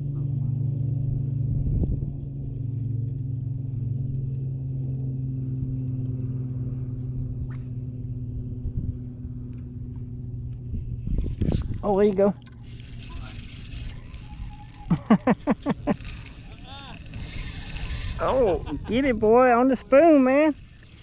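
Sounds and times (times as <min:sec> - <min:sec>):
low motor hum: 0:00.0 - 0:21.0
faint clicks: 0:11.2 - 0:21.0.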